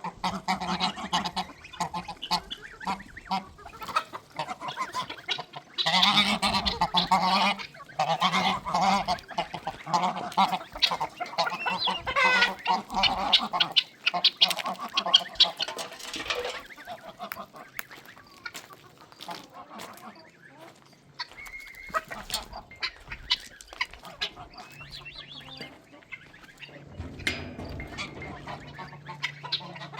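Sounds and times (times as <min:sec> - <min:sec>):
fowl calling: 0:00.0 - 0:29.9.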